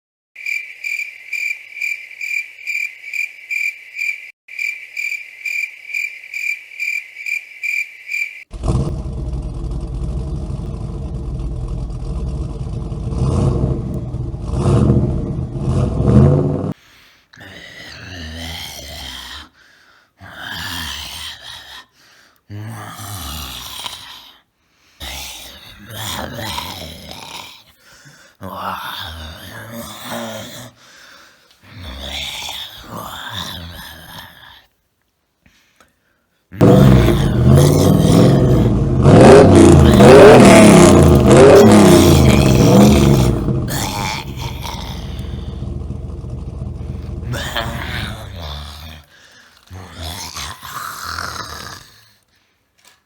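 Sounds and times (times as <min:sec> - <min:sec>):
car engine starting and revving: 0:08.5 - 0:16.8, 0:36.6 - 0:48.4
person making drawn-out wordless sounds: 0:22.5 - 0:24.4, 0:25.0 - 0:30.9, 0:31.6 - 0:34.8, 0:36.5 - 0:52.3.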